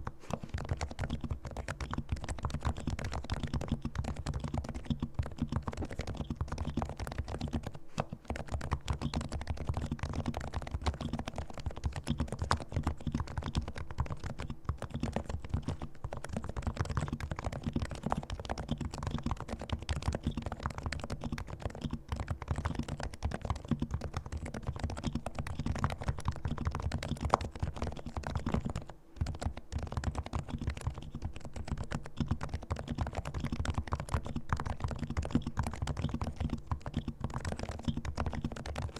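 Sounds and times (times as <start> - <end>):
fast muted keyboard typing: 0.0 - 38.9.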